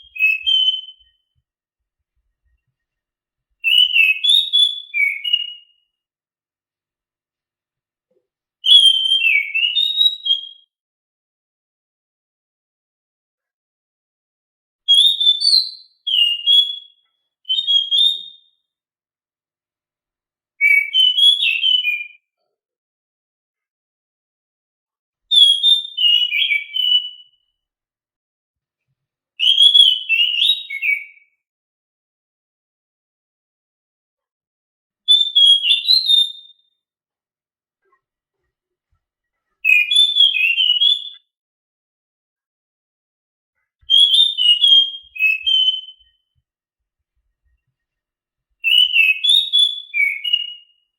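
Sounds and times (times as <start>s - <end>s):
thrush whistling song: 0.0s - 1.4s, 3.6s - 5.9s, 8.6s - 10.7s, 14.9s - 18.6s, 20.6s - 22.2s, 25.3s - 27.5s, 29.4s - 31.2s, 35.1s - 36.7s, 39.6s - 41.3s, 43.8s - 46.2s, 48.6s - 50.9s.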